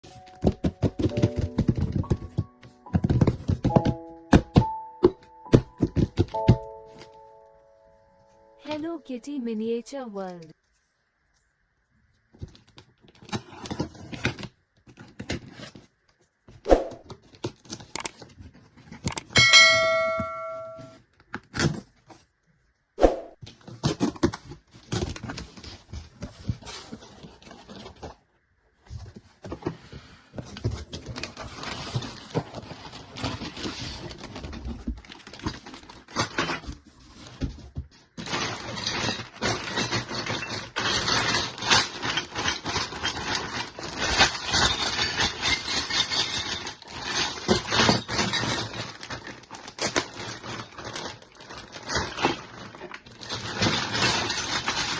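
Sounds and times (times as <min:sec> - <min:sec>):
plastic toy pieces clicking: 0:18.0 - 0:18.2
plastic packaging crinkling: 0:30.8 - 0:37.5, 0:38.1 - 0:54.9.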